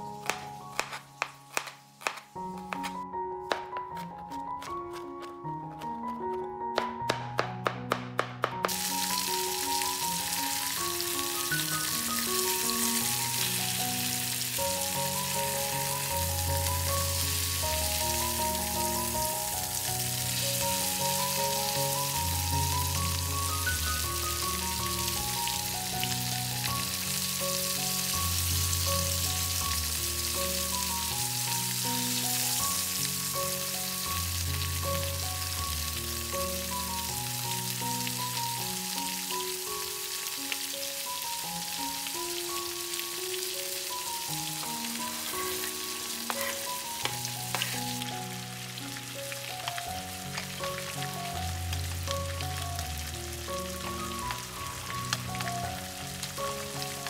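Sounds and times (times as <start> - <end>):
chicken sizzling in a pan: 0.0 - 3.0, 8.6 - 57.0
background music: 0.0 - 57.0
knife chopping on cutting board: 0.2 - 8.8.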